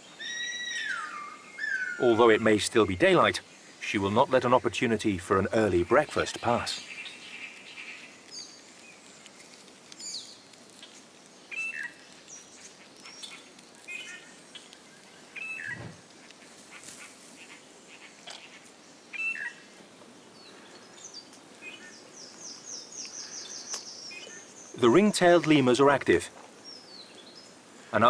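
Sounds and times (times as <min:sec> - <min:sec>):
birds chirping and whistling: 0:00.0 - 0:02.2, 0:15.4 - 0:16.0, 0:19.2 - 0:19.6, 0:20.4 - 0:26.0
faint steady hiss: 0:00.0 - 0:28.0.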